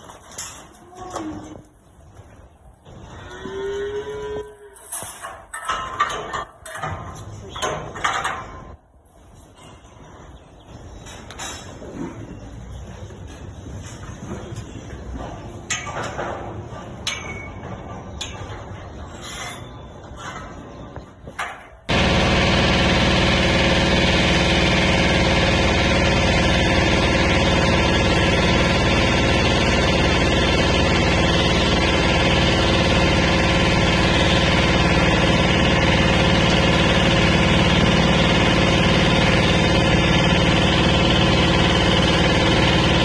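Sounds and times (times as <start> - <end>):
motor running with hum and hiss: 21.9 - 43.0.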